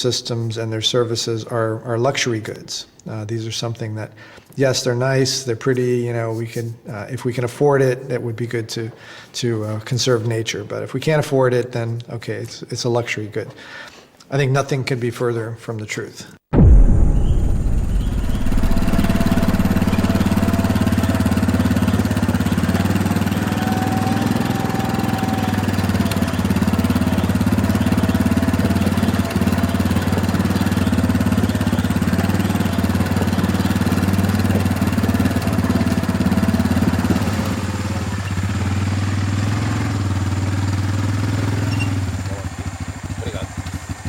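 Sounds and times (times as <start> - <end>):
engine humming steadily: 17.4 - 44.0.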